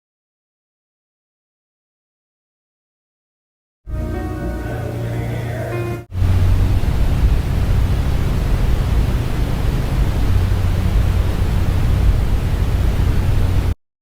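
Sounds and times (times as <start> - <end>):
loud low rumble: 3.9 - 13.8.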